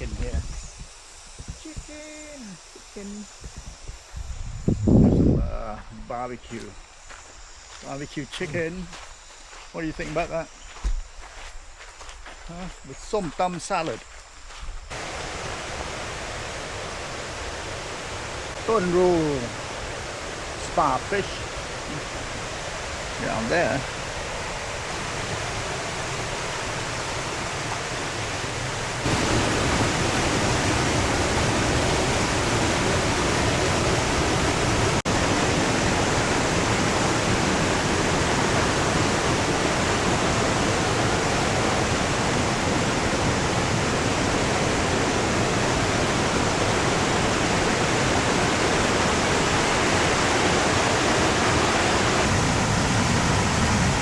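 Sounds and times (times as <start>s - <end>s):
waterfall rushing over rocks: 14.9s - 54.0s.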